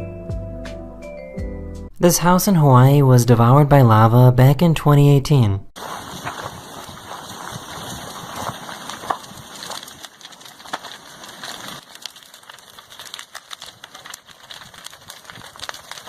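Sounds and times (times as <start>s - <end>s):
crackling and snapping: 5.8s - 16.0s.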